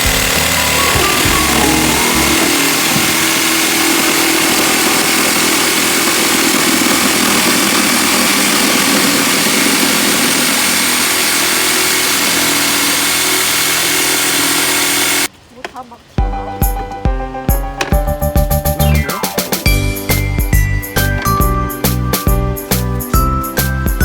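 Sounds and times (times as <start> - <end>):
electric power tool running: 0.0 - 15.3.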